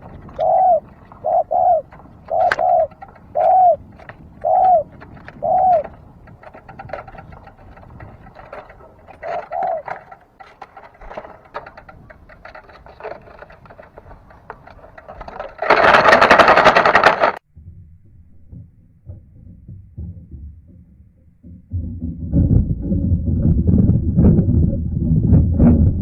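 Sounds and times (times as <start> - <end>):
dove cooing: 0.0 - 10.3
fast faint ticking: 0.0 - 17.4
faint low rumble: 17.5 - 26.0.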